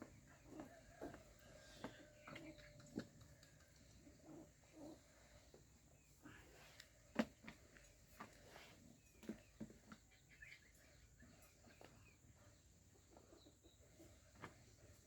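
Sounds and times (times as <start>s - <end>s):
faint bird chirps: 8.5s - 15.0s.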